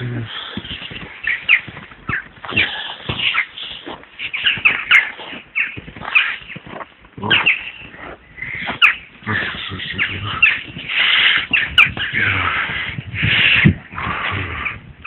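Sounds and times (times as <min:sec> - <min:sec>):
birds calling sharply: 0:00.0 - 0:14.8.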